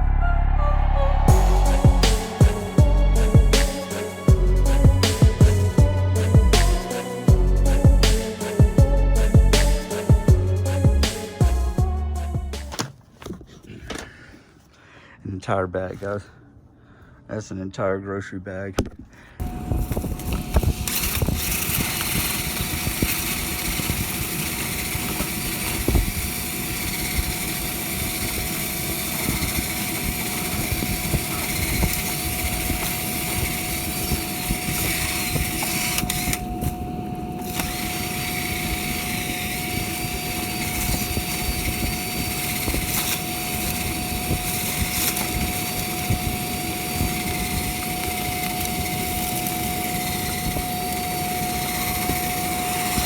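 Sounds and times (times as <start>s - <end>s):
motor whining: 0.0s - 12.9s, 19.4s - 53.0s
broad rushing hiss: 1.3s - 11.7s.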